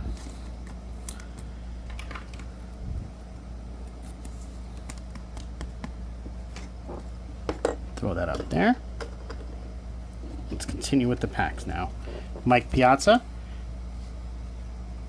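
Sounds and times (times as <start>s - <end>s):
steady low hum: 0.0s - 15.0s
card sleeve clicks and taps: 4.1s - 6.0s.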